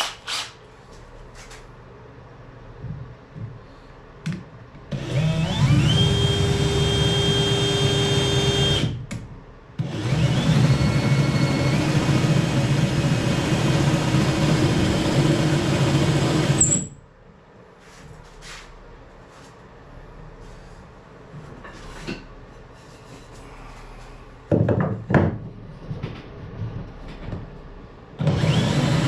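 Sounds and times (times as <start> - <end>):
electric drill boring through wood: 4.9 - 8.9, 9.8 - 16.7, 28.2 - 29.0.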